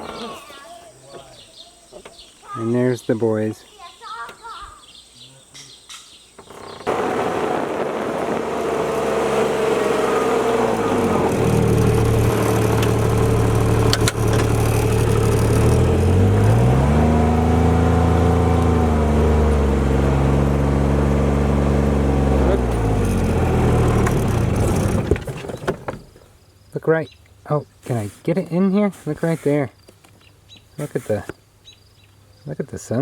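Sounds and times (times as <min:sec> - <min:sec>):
vehicle engine accelerating: 0:06.6 - 0:26.0.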